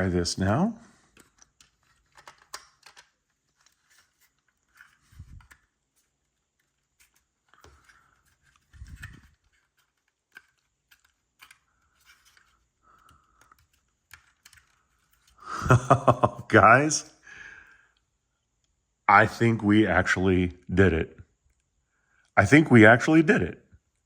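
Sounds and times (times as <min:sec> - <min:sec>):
plastic blocks clicking: 0:01.1 - 0:05.7, 0:06.6 - 0:15.3.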